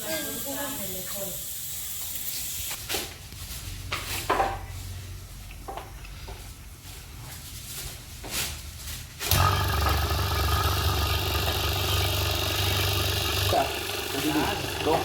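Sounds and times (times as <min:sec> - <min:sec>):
machine humming: 0:09.3 - 0:15.0.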